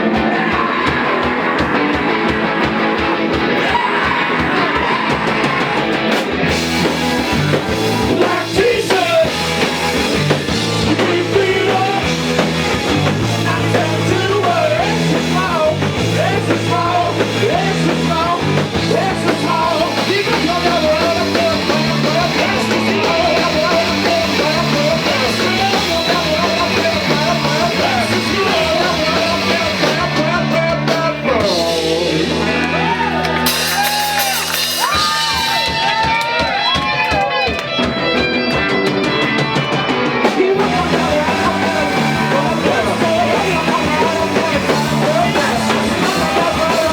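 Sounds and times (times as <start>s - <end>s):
bass line: 0.0s - 36.1s, 38.0s - 46.9s
live rock band playing: 0.0s - 46.9s.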